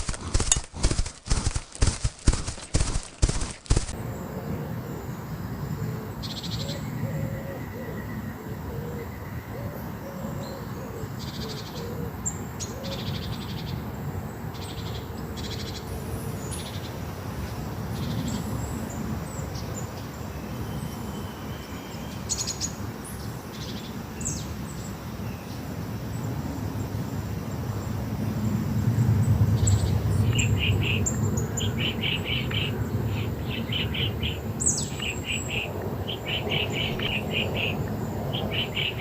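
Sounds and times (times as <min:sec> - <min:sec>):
low outdoor background rumble: 0:25.6 - 0:39.0
birds chirping: 0:29.2 - 0:39.0.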